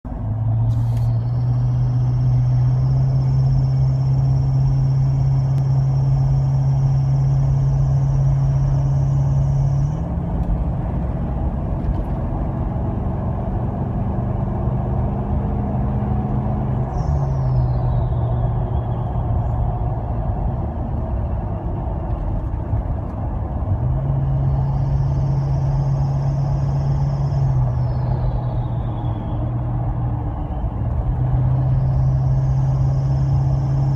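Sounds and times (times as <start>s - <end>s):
diesel engine running: 0.1s - 23.0s
turbocharger whistle: 0.8s - 19.2s.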